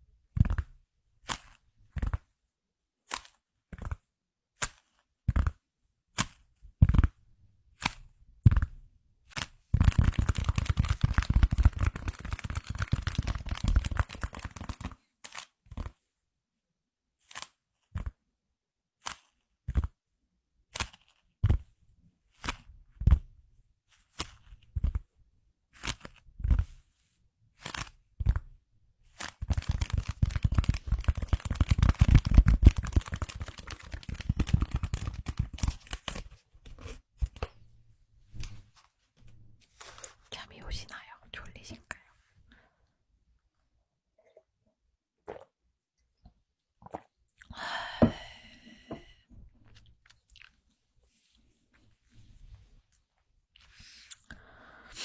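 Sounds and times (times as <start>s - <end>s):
object crinkling and crackling: 7.8s - 16.1s, 20.7s - 21.8s, 25.8s - 37.6s.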